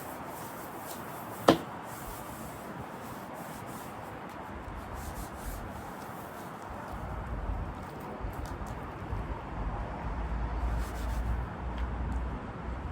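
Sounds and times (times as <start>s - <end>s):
hand sanding rubbing: 0.0s - 7.0s, 10.7s - 11.4s
sharp knock: 1.5s - 1.7s.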